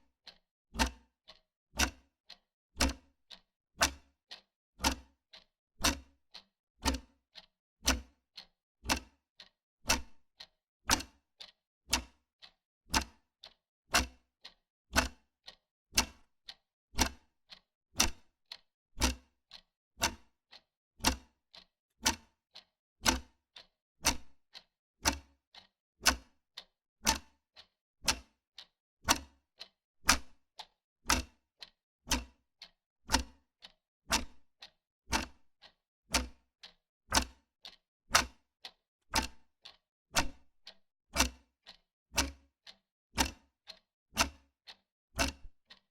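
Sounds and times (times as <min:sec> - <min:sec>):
wall clock ticking: 0:10.9 - 0:12.2, 0:16.0 - 0:16.2, 0:25.0 - 0:29.3, 0:30.1 - 0:32.3, 0:33.1 - 0:33.4, 0:34.1 - 0:36.4, 0:37.1 - 0:41.4, 0:42.2 - 0:44.4.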